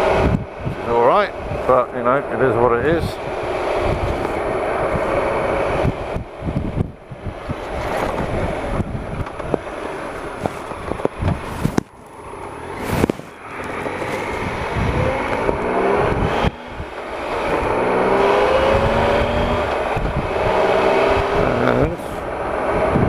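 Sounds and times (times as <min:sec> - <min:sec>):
motorcycle engine: 0:00.0 - 0:23.0
knocks and thumps from ruts: 0:05.8 - 0:12.1, 0:12.7 - 0:22.2.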